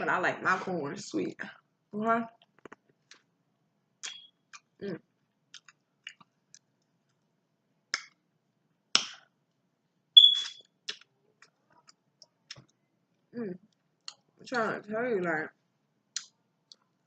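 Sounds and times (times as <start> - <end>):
tongue clicks: 16.2 - 16.8.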